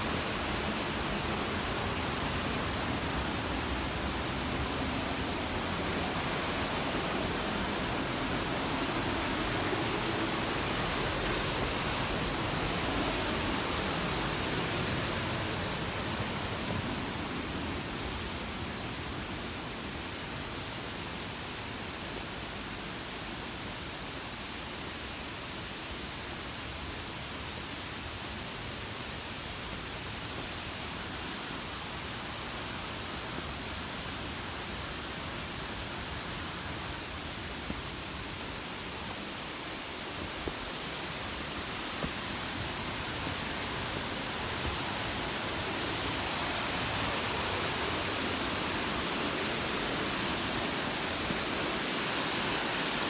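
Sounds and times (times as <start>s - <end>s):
waterfall rushing: 0.0s - 19.7s, 30.1s - 53.0s.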